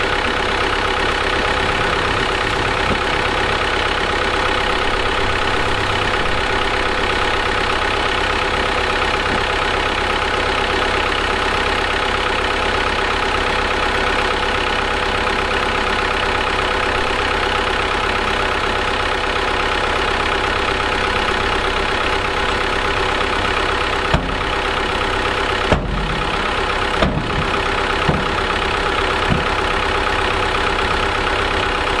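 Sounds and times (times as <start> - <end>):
heavy machinery diesel engine: 0.0 - 32.0
sharp knocks: 24.1 - 24.5, 25.7 - 26.2, 27.0 - 28.4.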